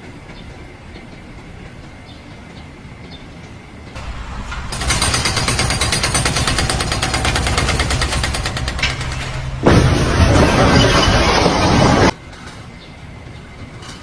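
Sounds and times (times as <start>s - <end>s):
fast mechanical rattle: 4.6s - 12.1s.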